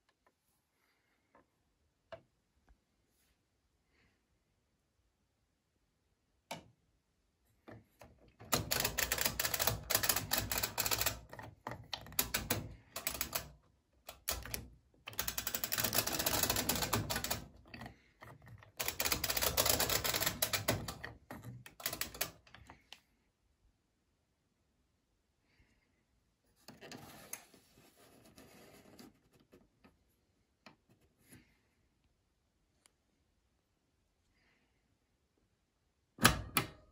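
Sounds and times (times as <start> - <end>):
timer knob clicking rapidly: 14.1 - 17.5, 18.8 - 21.0.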